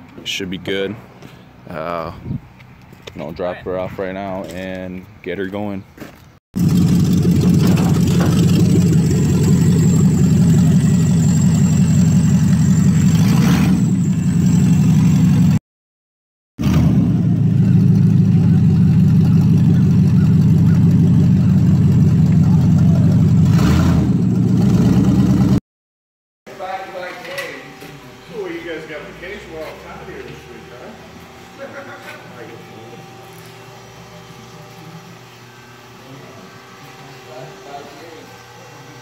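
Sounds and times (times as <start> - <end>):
car engine idling: 6.6 - 15.6, 17.2 - 23.5
engine revving: 6.6 - 15.6, 16.6 - 25.6.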